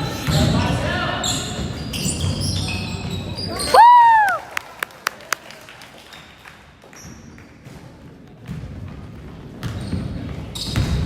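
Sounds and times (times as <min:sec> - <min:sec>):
basketball bouncing on wooden floor: 0:08.4 - 0:11.0.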